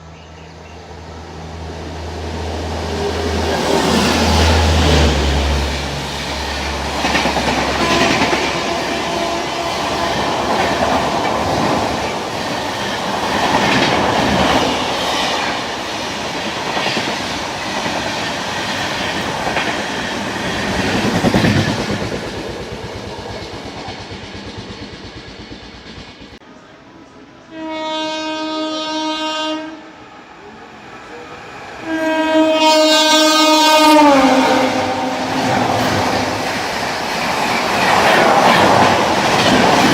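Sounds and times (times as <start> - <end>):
train wheels clattering over rails: 6.0 - 26.4, 34.8 - 39.9.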